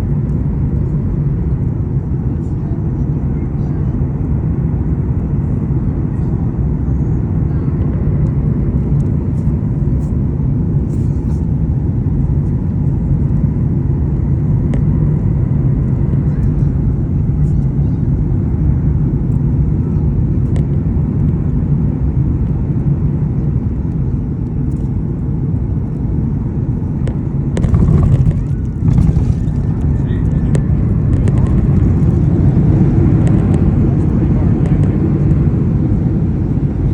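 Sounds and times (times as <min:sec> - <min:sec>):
aircraft cabin rumble: 0:00.0 - 0:36.9
rushing noise: 0:27.6 - 0:32.3.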